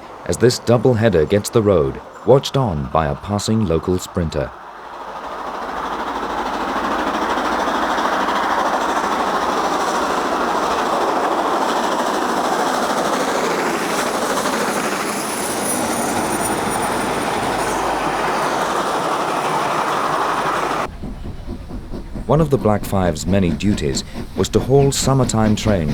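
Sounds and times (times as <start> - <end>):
steam locomotives working hard: 0.0 - 25.9.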